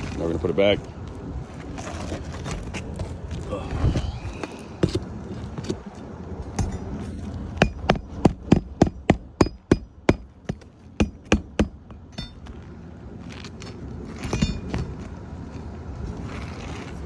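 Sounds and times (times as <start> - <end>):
hammer striking nails: 7.6 - 12.4.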